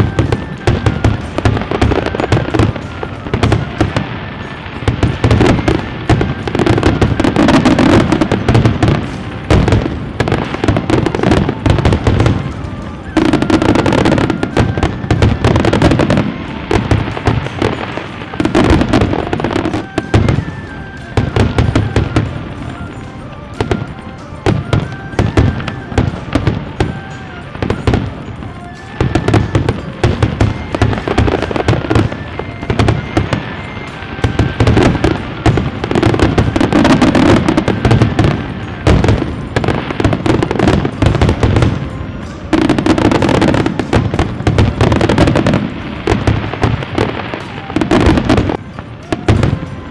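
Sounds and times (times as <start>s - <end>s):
fireworks bangs and crackling: 0.0s - 49.9s
low fireworks booms: 0.0s - 49.9s
music: 0.0s - 49.9s.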